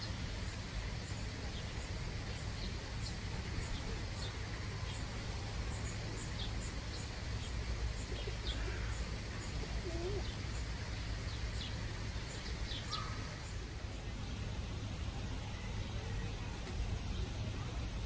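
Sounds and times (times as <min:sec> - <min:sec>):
small birds chirping: 0:00.0 - 0:14.5
low wavering bird calls: 0:05.7 - 0:13.7.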